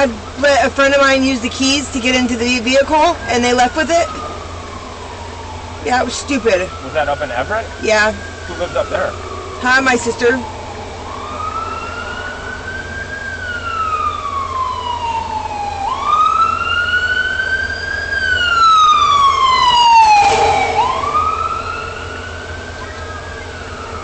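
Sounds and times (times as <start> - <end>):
emergency siren wailing: 0.0 - 24.0.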